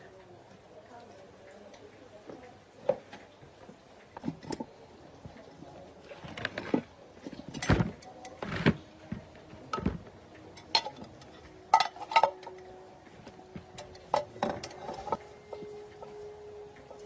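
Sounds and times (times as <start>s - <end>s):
metal tools clinking: 10.3s - 12.8s.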